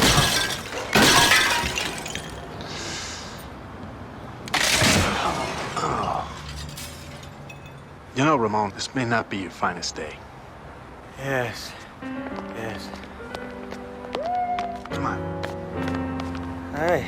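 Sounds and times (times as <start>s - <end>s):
glass shattering: 0.0s - 2.6s, 4.5s - 8.0s.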